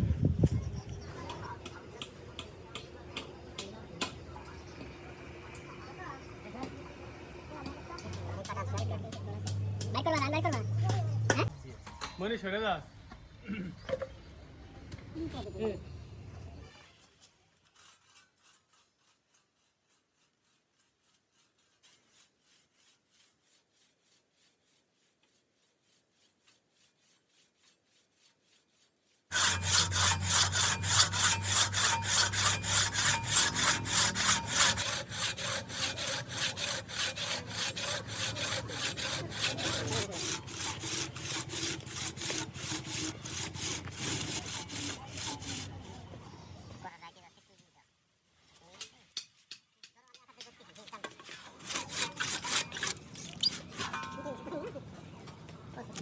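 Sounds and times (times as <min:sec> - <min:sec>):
hand saw cutting wood: 0:08.0 - 0:11.5, 0:17.7 - 0:19.2, 0:29.3 - 0:46.0, 0:51.0 - 0:54.1.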